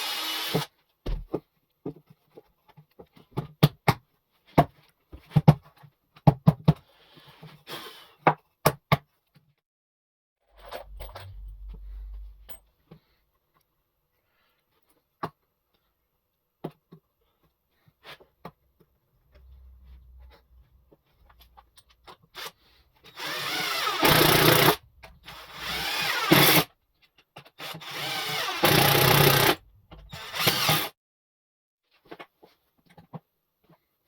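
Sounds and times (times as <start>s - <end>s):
power drill driving into wood: 0.0s - 0.7s, 23.1s - 26.7s, 27.6s - 31.0s.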